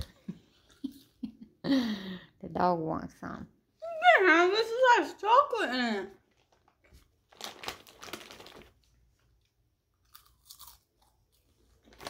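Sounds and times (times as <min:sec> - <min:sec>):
person chewing crunchy food: 0:09.4 - 0:12.0.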